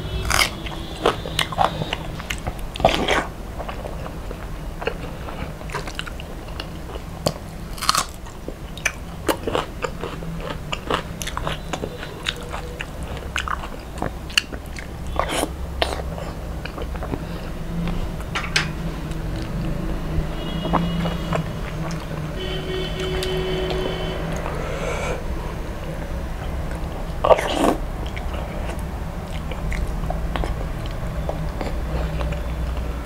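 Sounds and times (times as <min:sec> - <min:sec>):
wet chewing with crunchy clicks: 0:00.2 - 0:18.3, 0:26.5 - 0:33.0.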